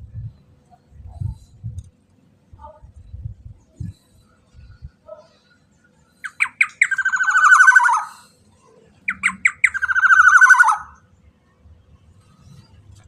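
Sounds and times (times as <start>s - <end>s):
bird harsh rasping calls: 6.2s - 8.3s, 9.1s - 11.0s.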